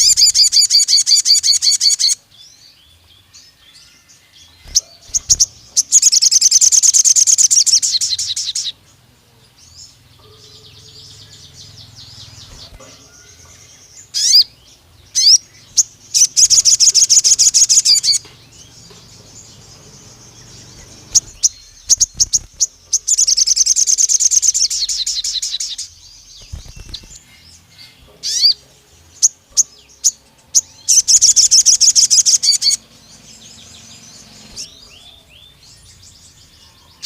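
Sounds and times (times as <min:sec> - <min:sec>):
sharp upward-sweeping bird calls: 0:00.0 - 0:02.2, 0:04.6 - 0:08.8, 0:14.0 - 0:18.2, 0:19.7 - 0:27.3, 0:30.8 - 0:35.7
soft bird chattering: 0:00.0 - 0:02.2, 0:04.6 - 0:08.8, 0:10.2 - 0:35.6
songbird trilling: 0:00.0 - 0:02.7, 0:03.8 - 0:08.8, 0:09.8 - 0:28.6, 0:29.2 - 0:37.0.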